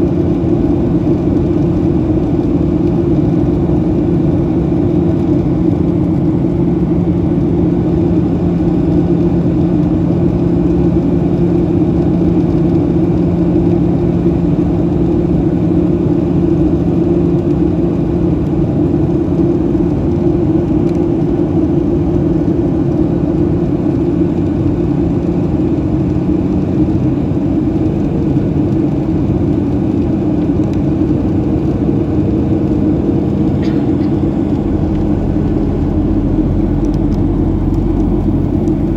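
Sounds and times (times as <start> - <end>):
constant low hum: 0.0 - 38.9
jet engine drone in cabin: 0.0 - 38.9
rushing air: 32.4 - 38.9.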